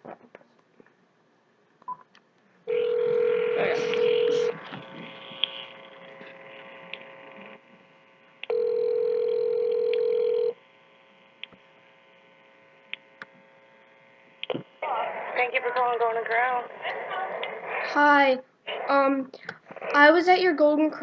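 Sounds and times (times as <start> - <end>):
phone ringback tone: 2.7 - 4.6, 8.5 - 10.6.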